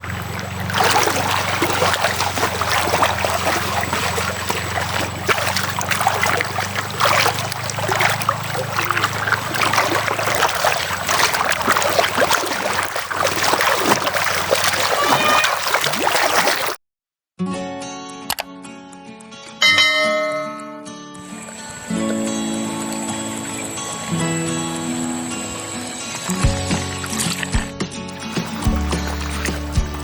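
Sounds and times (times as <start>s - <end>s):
river water flowing and splashing: 0.0s - 16.8s, 19.7s - 30.0s.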